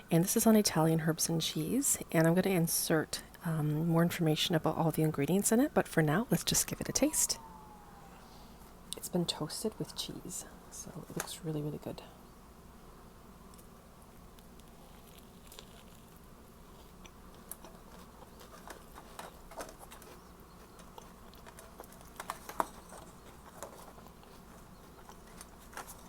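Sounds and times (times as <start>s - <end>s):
person chewing sandwich: 13.6s - 26.0s.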